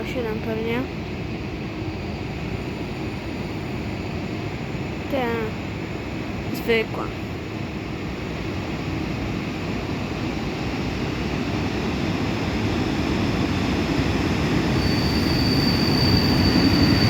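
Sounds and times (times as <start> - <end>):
train rumble: 0.0 - 17.0
carriages squealing: 14.7 - 17.0.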